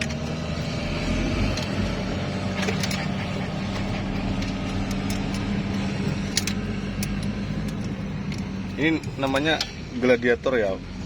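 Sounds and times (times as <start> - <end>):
engine idling: 0.0 - 10.6
sharp metallic clicks: 2.6 - 9.8.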